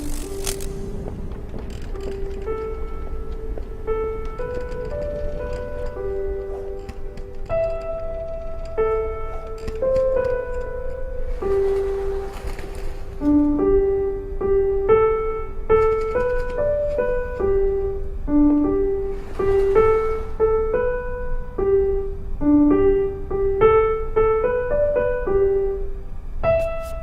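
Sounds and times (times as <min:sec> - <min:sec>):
soft hisses: 0:00.0 - 0:13.9, 0:18.9 - 0:21.4, 0:26.4 - 0:27.0
gentle piano melody: 0:00.0 - 0:27.0.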